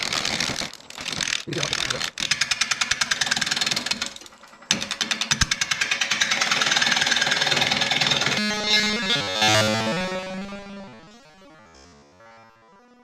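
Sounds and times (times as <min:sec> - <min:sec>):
music: 0:05.9 - 0:13.0.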